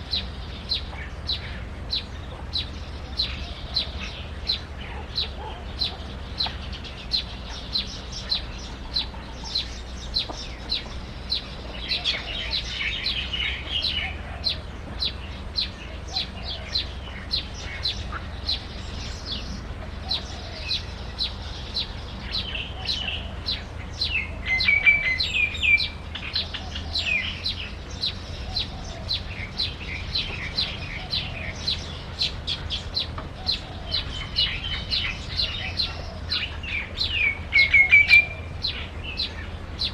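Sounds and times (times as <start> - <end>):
bird chirping: 0.0 - 39.9
steady low hum: 0.0 - 39.9.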